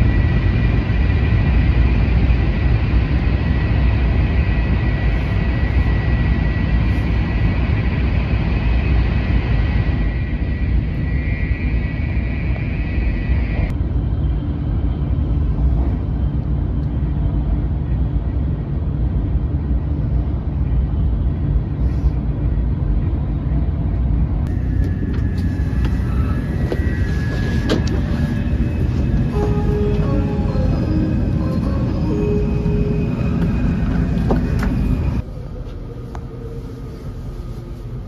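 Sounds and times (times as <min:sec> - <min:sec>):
train cabin rumble: 0:14.5 - 0:38.0.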